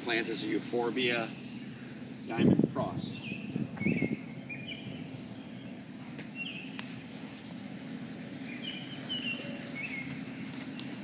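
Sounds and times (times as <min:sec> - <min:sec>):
low background rumble: 0:00.0 - 0:11.0
songbird chirping: 0:02.9 - 0:11.0.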